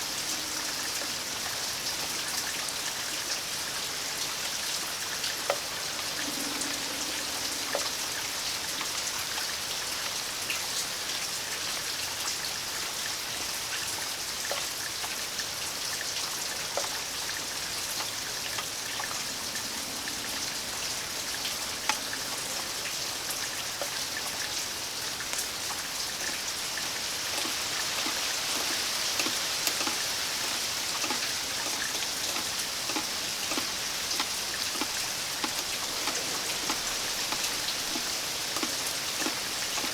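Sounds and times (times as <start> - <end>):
sharp water drips: 0.0 - 39.9
steady rain falling: 0.0 - 39.9.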